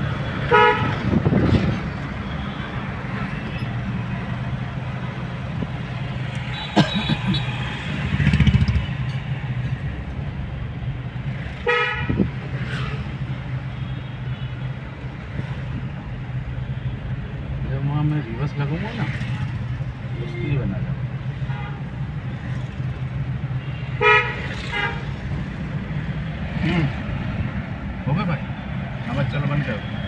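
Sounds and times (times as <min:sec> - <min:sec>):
vehicle horn honk: 0:00.5 - 0:00.9, 0:23.6 - 0:25.0.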